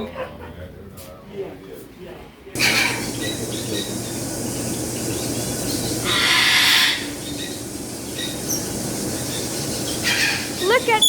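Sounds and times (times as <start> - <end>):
parrot screeching: 2.6 - 3.9, 6.0 - 7.6, 9.9 - 11.0
faint bird chirps: 2.6 - 11.0.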